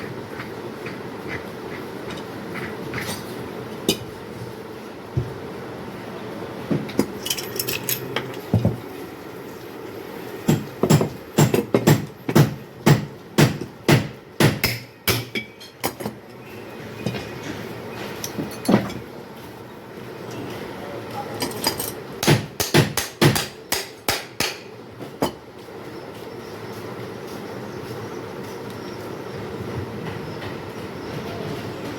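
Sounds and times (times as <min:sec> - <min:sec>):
hammer strikes: 0:10.5 - 0:15.6, 0:22.2 - 0:25.4.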